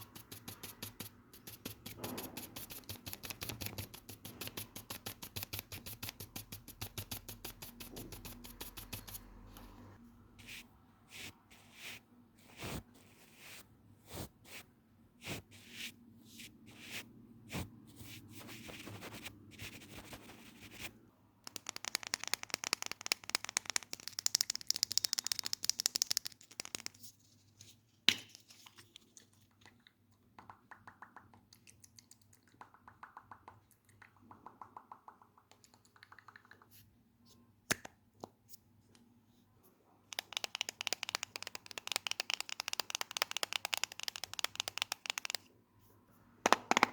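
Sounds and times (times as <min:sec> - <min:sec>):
fast dense scratching: 0:00.0 - 0:09.3.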